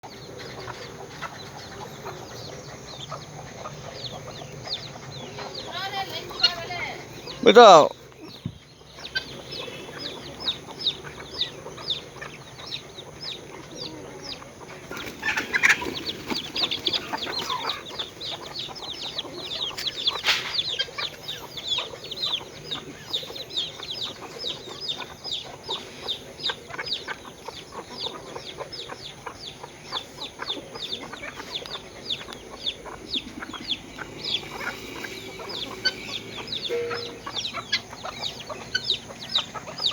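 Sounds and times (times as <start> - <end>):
chickens chirping: 0.0 - 39.9
louder chicken calls: 7.4 - 7.9, 30.2 - 39.9.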